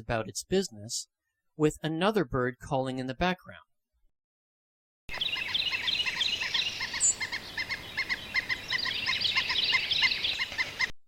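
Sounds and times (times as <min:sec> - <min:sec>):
distant bird chirps: 0:05.1 - 0:11.0
woodpecker repeated calls: 0:05.1 - 0:11.0.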